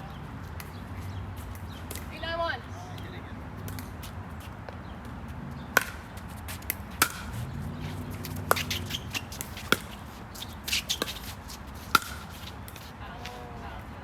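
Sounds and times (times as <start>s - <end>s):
shoes scuffing on court: 3.6s - 13.5s.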